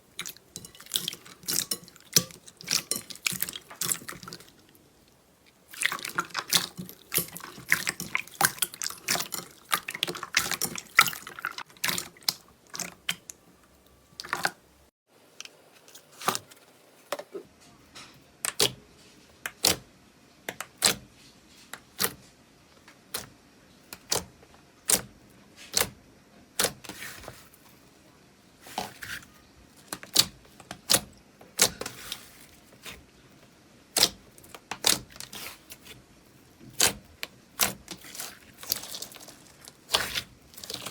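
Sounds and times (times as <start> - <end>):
slime squishing with wet pops: 19.4 - 21.1, 23.9 - 27.2, 29.8 - 33.0, 33.9 - 36.0, 36.6 - 40.9.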